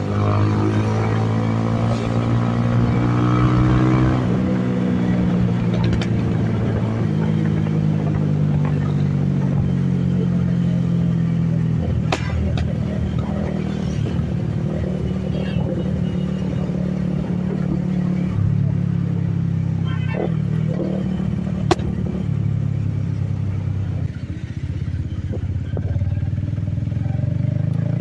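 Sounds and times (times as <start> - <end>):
motorcycle engine under throttle: 0.0 - 28.0
exhaust backfire pops: 11.8 - 13.2, 21.6 - 22.1.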